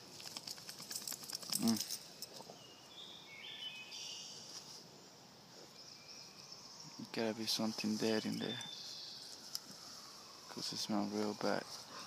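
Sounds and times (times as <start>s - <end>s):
rustling and scuffing: 4.4s - 4.9s, 7.5s - 8.5s
insects trilling: 6.0s - 12.0s.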